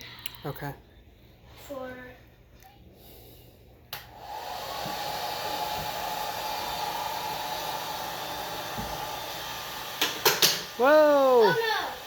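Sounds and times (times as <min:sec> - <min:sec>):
hair dryer blowing: 0:04.0 - 0:12.0.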